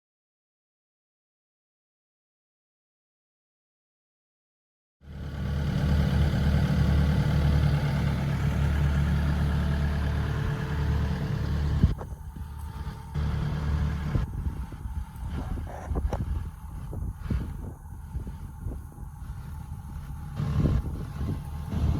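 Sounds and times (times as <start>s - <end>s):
diesel engine running: 5.0s - 21.9s.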